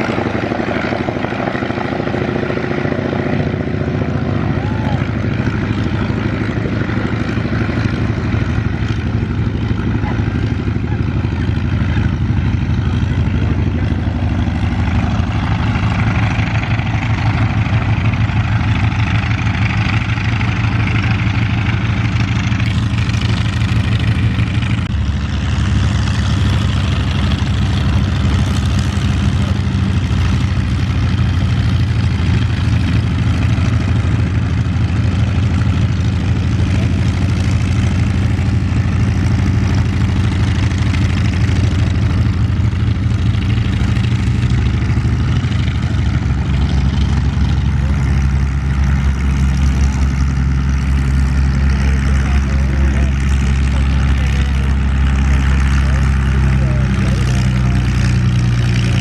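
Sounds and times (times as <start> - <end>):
piston aero engine running: 0.0 - 59.0.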